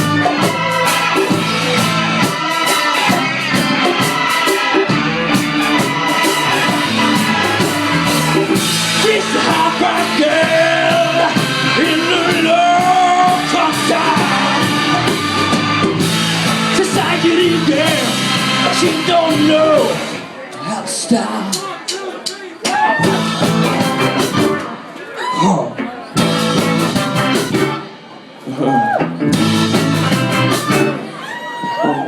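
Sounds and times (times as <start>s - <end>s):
person singing: 0.0s - 24.6s
rock band playing: 0.0s - 32.0s.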